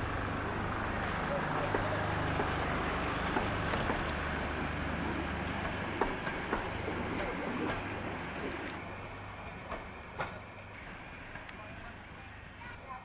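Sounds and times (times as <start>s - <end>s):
train coaches rumbling past: 0.0s - 13.0s
train wheel clicks: 1.6s - 4.3s, 5.4s - 8.8s.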